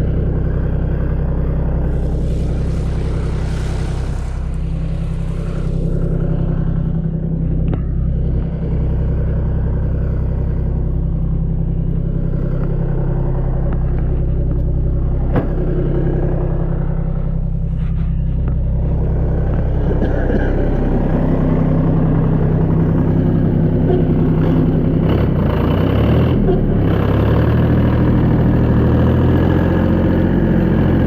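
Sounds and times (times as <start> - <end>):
vehicle engine droning: 0.0 - 31.0
hiss: 1.8 - 6.5.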